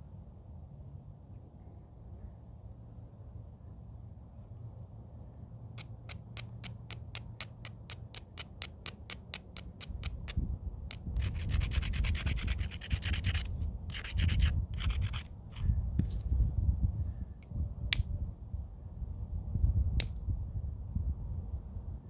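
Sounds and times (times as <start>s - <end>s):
stone scraping on stone: 5.8s - 16.2s.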